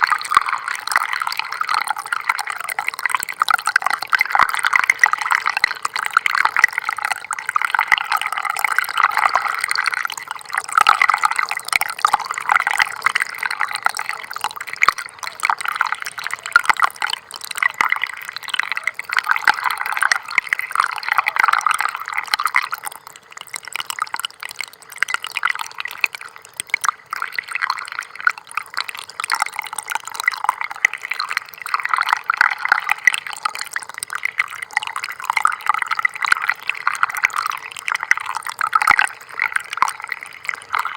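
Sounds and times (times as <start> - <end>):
stream trickling and babbling: 0.0 - 40.9.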